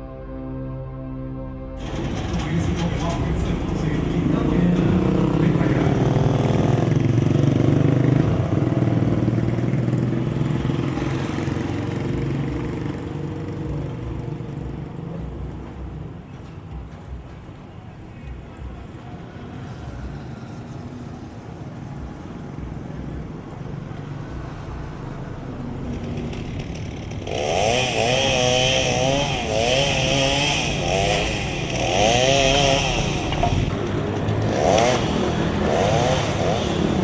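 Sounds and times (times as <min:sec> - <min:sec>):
chainsaw revving: 0:01.8 - 0:13.0, 0:25.8 - 0:37.0
low engine rumble: 0:01.8 - 0:37.0.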